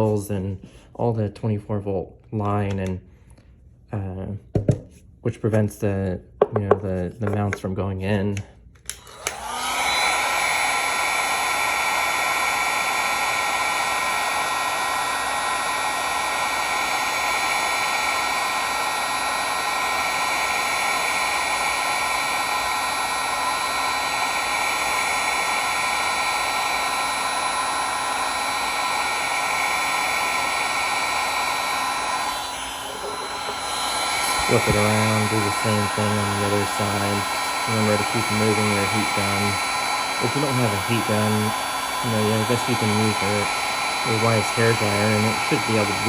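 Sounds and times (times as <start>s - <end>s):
heat gun fan whining: 8.2s - 46.0s
hot air rushing: 29.0s - 46.0s.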